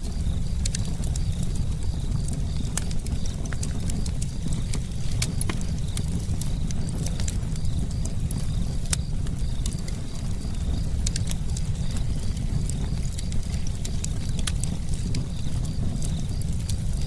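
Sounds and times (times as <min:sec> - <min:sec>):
fire rumbling: 0:00.0 - 0:17.0
wood crackling and popping: 0:00.0 - 0:17.0.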